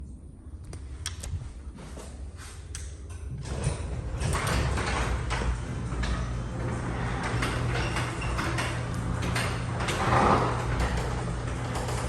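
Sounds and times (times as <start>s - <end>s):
garage door rumbling and rattling: 0.9s - 12.0s
garage door opener humming: 3.0s - 12.0s.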